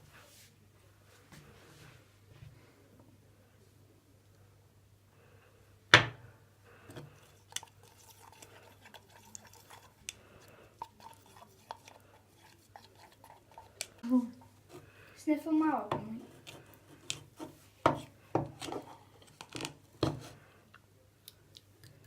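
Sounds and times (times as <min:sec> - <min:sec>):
small clicks and soft squelches: 0:06.8 - 0:15.2, 0:20.7 - 0:22.0.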